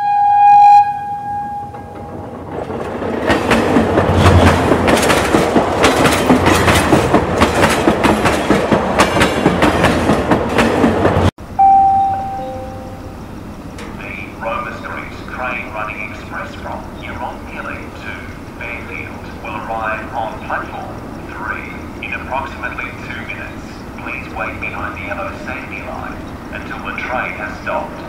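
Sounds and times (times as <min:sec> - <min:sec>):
train horn: 0:00.0 - 0:02.2
train clickety-clack on rails: 0:01.7 - 0:11.3, 0:13.7 - 0:28.0
short horn-like beep: 0:11.6 - 0:13.1.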